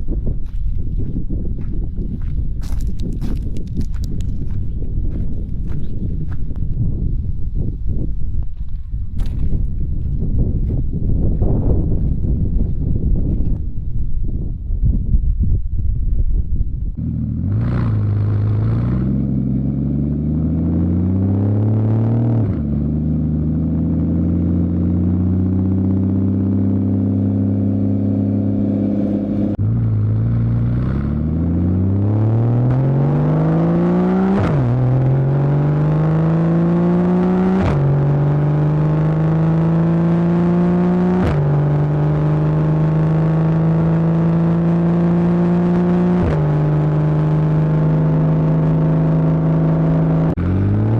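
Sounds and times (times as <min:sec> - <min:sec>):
exhaust cracks on upshifts: 0:00.4 - 0:06.9
car engine accelerating: 0:16.9 - 0:50.9.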